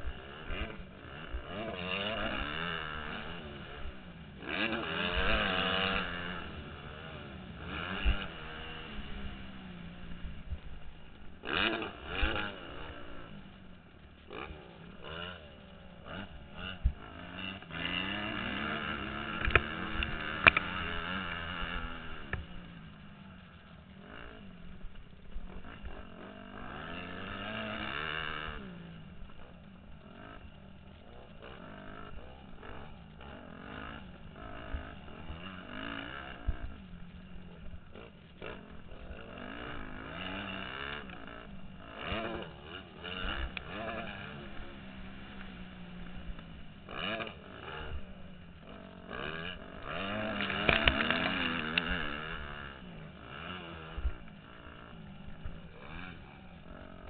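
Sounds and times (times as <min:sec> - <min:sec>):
motocross bike engine revving: 0:00.0 - 0:57.0
knocks and clatter from bike: 0:16.1 - 0:22.6, 0:49.2 - 0:52.7.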